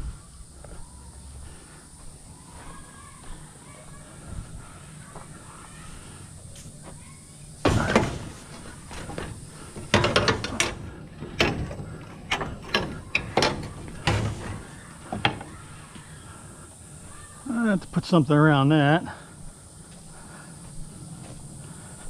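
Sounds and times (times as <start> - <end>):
scrap metal clanking: 7.7 - 15.6.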